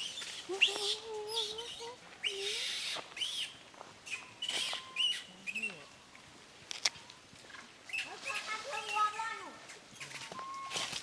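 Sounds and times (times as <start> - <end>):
monkeys squealing: 0.1 - 3.5.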